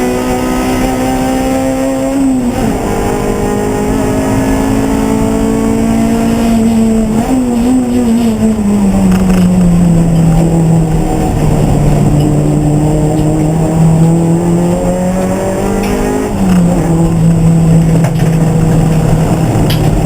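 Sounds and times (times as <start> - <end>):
race car engine under load: 0.0 - 20.0.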